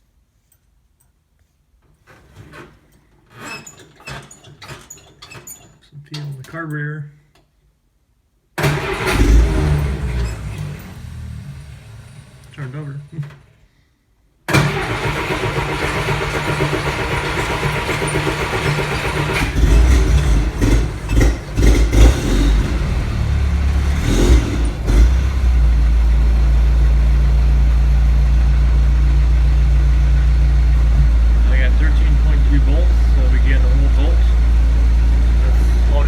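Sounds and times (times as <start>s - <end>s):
starter motor cranking: 8.6s - 12.6s, 14.5s - 25.6s
engine running unevenly: 8.9s - 12.6s, 14.6s - 36.0s.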